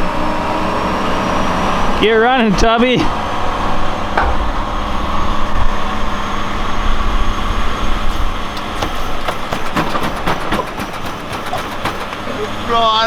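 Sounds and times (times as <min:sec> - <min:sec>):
wind and road noise: 0:00.0 - 0:11.2
vehicle engine rumble: 0:00.0 - 0:13.0
short knocks or rattles: 0:04.1 - 0:06.0.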